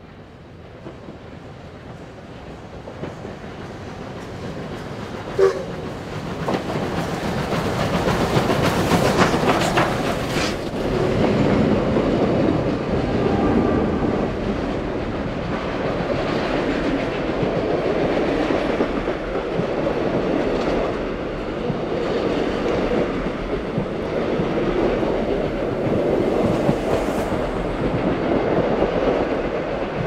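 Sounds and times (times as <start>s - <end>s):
steam locomotive passing: 0.0s - 30.0s
wheels clicking over rail joints: 0.8s - 12.7s
diesel locomotive rumble: 4.9s - 16.6s.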